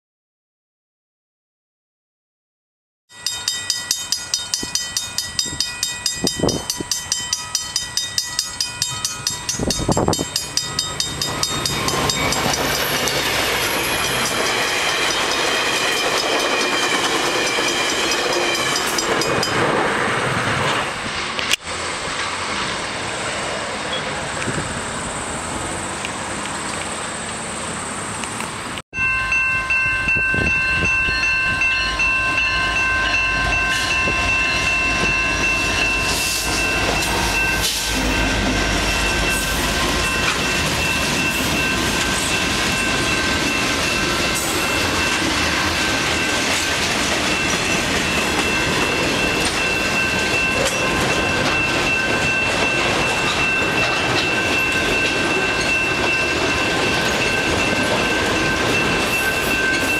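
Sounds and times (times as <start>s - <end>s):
train wheels clattering on rails: 3.2s - 23.0s, 33.4s - 59.9s
high-pitched ringing tones: 29.0s - 45.2s.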